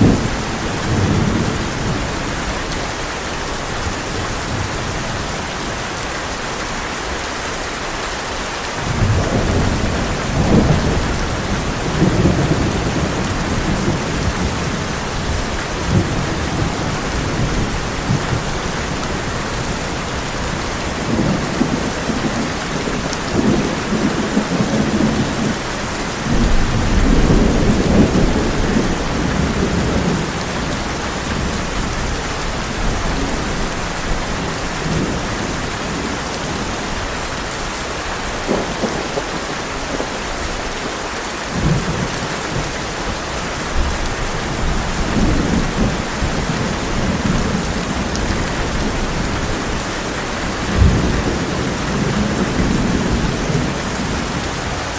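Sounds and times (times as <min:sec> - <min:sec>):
rolling thunder: 0:00.0 - 0:02.8, 0:08.8 - 0:36.8, 0:43.7 - 0:54.9
heavy rain on a tin roof: 0:00.0 - 0:54.9.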